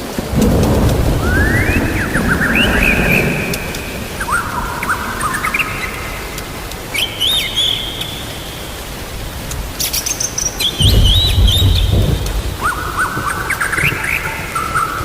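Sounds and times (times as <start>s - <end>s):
low thunder rumble: 0.0s - 6.9s, 10.6s - 15.0s
steady rain: 0.0s - 15.0s
songbirds chirping: 0.3s - 15.0s.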